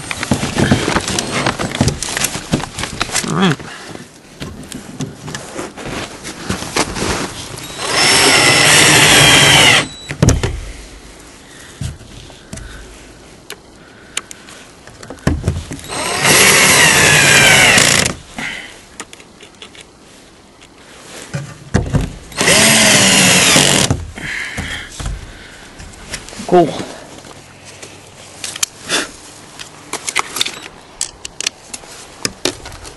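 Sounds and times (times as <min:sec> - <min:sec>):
clatter and handling noises: 0:00.0 - 0:07.7
electric drill running: 0:07.7 - 0:10.0, 0:15.9 - 0:18.1, 0:22.4 - 0:23.9.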